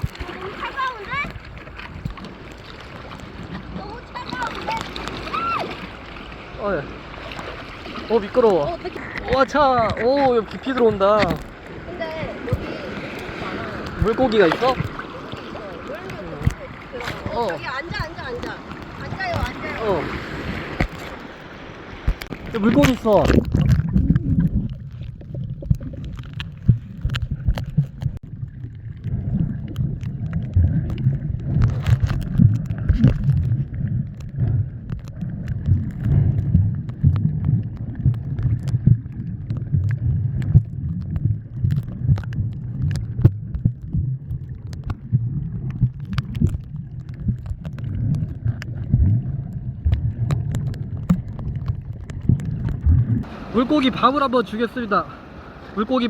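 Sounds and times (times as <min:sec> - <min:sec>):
sea water sloshing and gurgling: 0:00.0 - 0:56.0
small clicks and ticks: 0:22.0 - 0:53.3.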